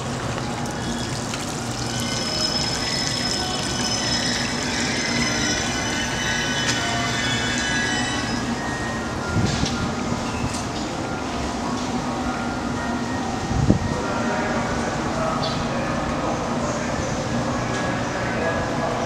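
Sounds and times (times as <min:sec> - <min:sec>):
water trickling in a fountain: 0:00.0 - 0:05.8
electric train humming and whining: 0:00.0 - 0:19.0.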